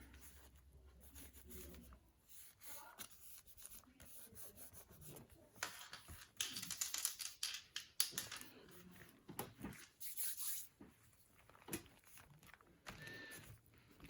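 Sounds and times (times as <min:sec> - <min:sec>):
hand rubbing paper: 0:09.8 - 0:11.3.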